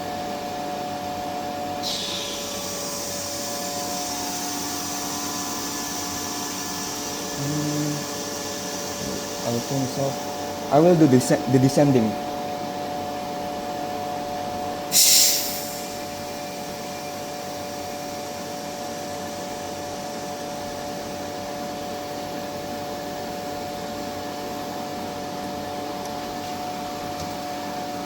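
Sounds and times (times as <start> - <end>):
vacuum pump humming: 1.1 - 14.7
sharp hiss of air: 14.9 - 16.2.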